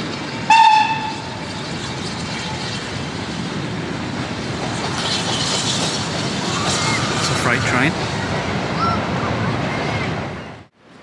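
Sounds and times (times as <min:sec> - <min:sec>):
train running noise: 0:00.0 - 0:11.0
train whistle blast: 0:00.5 - 0:01.3.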